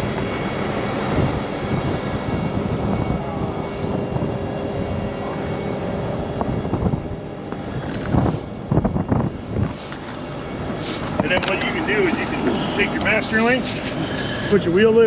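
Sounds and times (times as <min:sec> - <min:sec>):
steady whine: 0:00.0 - 0:15.0
truck diesel engine running: 0:09.5 - 0:15.0.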